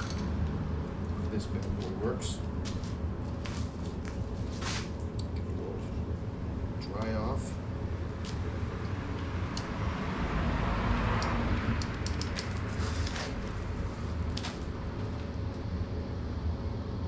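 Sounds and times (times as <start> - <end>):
steady low rumble: 0.0 - 17.0
sharp clicks and ticks: 8.3 - 9.8, 10.9 - 12.7.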